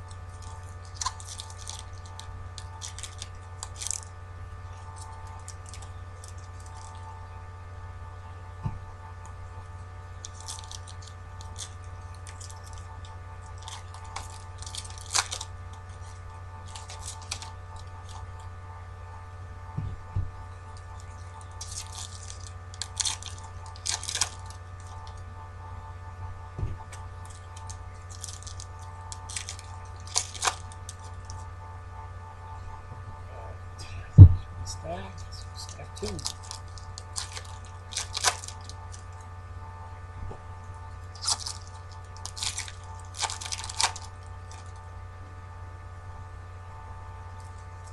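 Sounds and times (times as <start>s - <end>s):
card wrappers crinkling and tearing: 0.0s - 4.1s, 4.7s - 7.1s, 10.2s - 18.5s, 20.7s - 25.2s, 27.2s - 31.5s, 35.6s - 39.3s, 41.0s - 44.8s
steady electrical hum: 0.0s - 47.9s
cards being handled: 35.2s - 39.1s, 41.2s - 44.8s.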